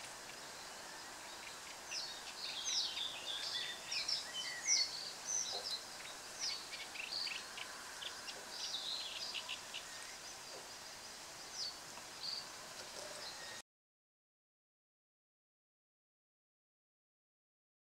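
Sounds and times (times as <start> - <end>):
birds chirping: 0.0 - 13.6
faint outdoor hiss: 0.0 - 13.6.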